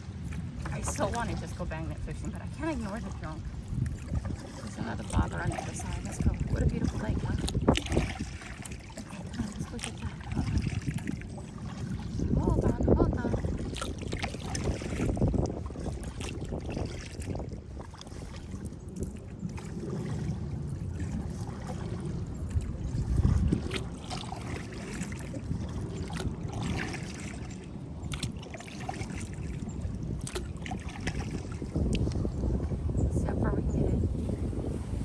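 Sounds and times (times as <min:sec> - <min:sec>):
paddle splashes and drips: 0:00.0 - 0:33.0
wind on microphone: 0:00.0 - 0:35.0
paddle knocks: 0:00.6 - 0:02.3, 0:30.2 - 0:32.0.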